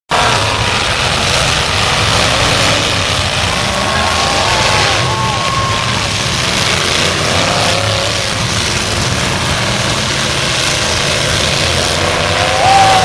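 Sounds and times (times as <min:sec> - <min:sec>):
engine revving: 0:00.1 - 0:13.0
truck engines running: 0:00.1 - 0:13.0.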